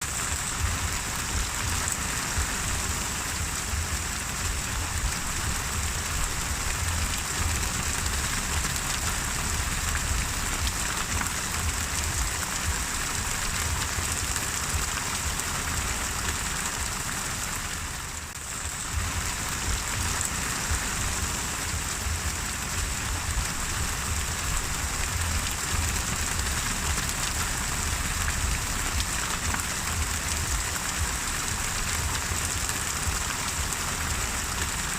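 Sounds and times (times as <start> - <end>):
low rumble: 0.0 - 16.0, 18.6 - 33.3
steady rain falling: 0.0 - 34.9.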